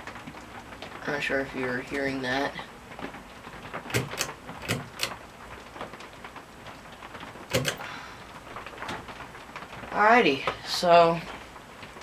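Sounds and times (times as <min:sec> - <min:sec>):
sharp clicks and knocks: 0:03.0 - 0:05.2, 0:07.1 - 0:07.9.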